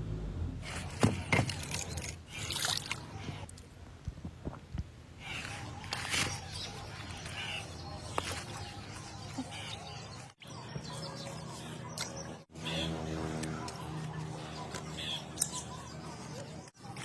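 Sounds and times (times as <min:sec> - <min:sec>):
birds chirping: 0:05.2 - 0:17.0.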